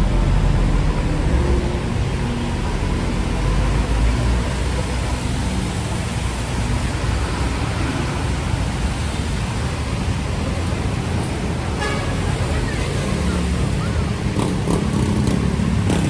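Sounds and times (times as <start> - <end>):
heavy rain on city street: 0.0 - 16.0
passing traffic rumble: 0.0 - 16.0.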